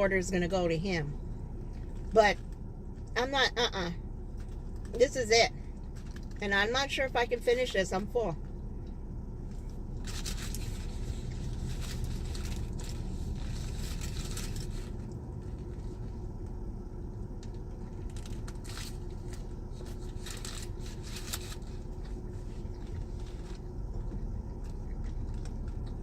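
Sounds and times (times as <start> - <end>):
low rumble inside a car: 0.0 - 26.0
wrappers and bags crinkling: 5.8 - 6.4, 9.4 - 16.2, 17.4 - 26.0.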